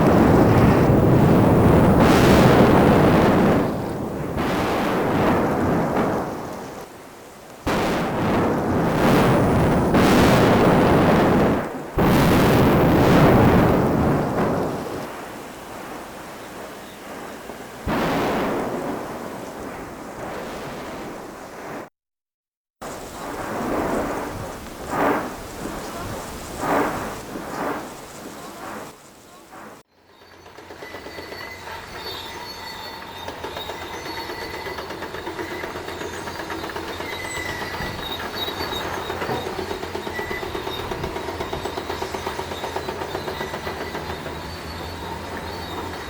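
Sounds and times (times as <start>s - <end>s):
volcano erupting deep rumbling roar: 0.0s - 6.8s, 7.7s - 21.9s.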